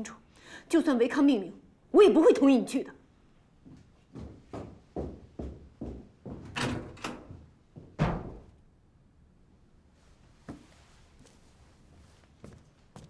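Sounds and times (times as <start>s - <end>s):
heavy dull footsteps: 3.6s - 8.6s.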